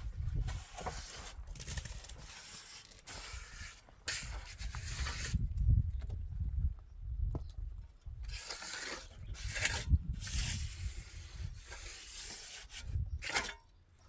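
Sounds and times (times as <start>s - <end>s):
rough scraping strokes: 0.3s - 5.4s, 8.3s - 13.7s.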